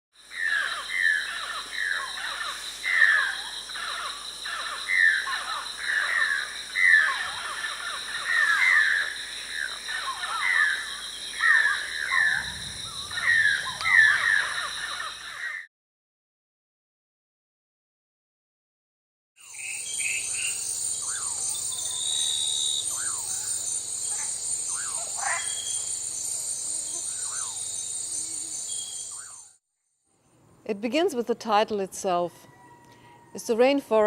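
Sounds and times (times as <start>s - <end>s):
high-pitched insect drone: 0.2s - 15.6s, 19.4s - 29.6s.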